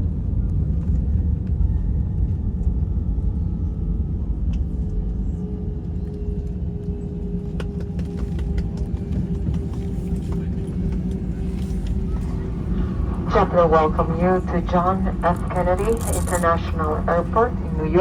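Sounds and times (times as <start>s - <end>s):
rumble of engines and wheels: 0.0s - 18.0s
steady hum: 12.2s - 18.0s.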